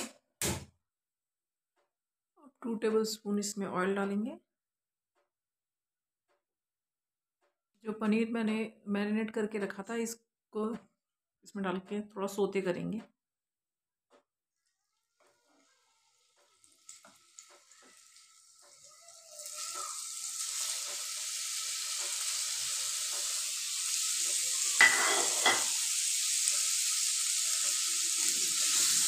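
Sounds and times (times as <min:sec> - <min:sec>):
frying sizzle: 0:14.6 - 0:29.0.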